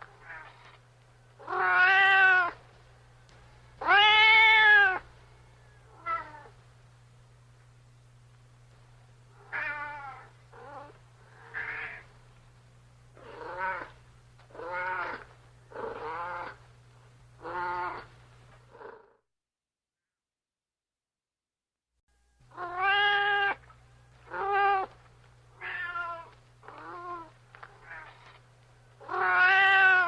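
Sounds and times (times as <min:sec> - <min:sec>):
steady low hum: 0:00.0 - 0:18.9, 0:22.1 - 0:30.0
cat meowing: 0:01.4 - 0:02.6, 0:03.8 - 0:05.0, 0:05.9 - 0:06.5, 0:09.4 - 0:12.1, 0:13.2 - 0:15.3, 0:17.4 - 0:18.1, 0:22.5 - 0:23.6, 0:24.3 - 0:25.0, 0:25.6 - 0:28.3, 0:29.0 - 0:30.0.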